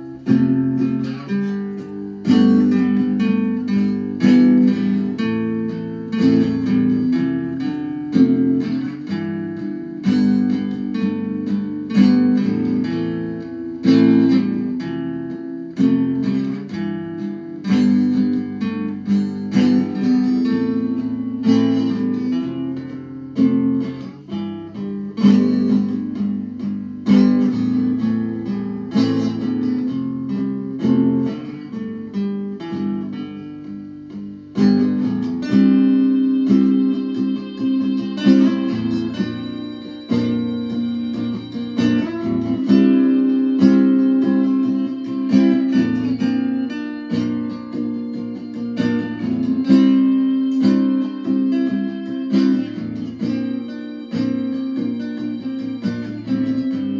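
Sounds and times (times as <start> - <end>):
fingerstyle acoustic guitar: 0.0 - 56.9.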